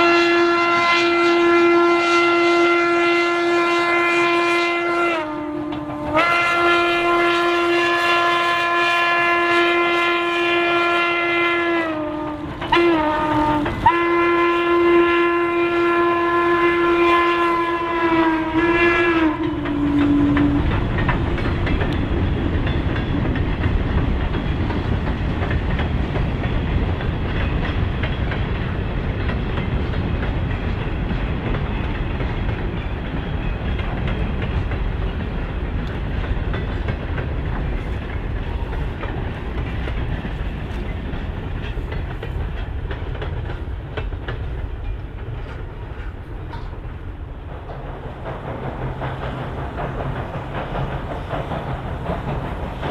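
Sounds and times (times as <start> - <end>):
train horn blast: 0.0 - 21.1
train rumbling by: 0.0 - 52.9.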